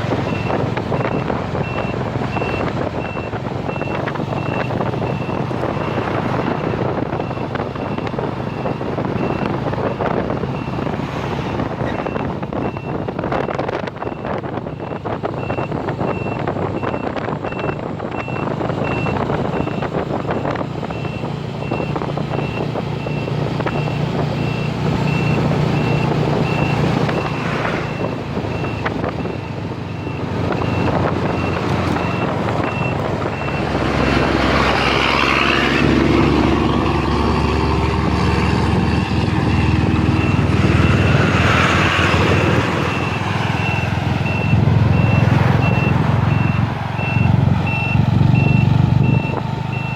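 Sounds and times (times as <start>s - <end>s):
high electronic beep: 42.9s - 49.9s.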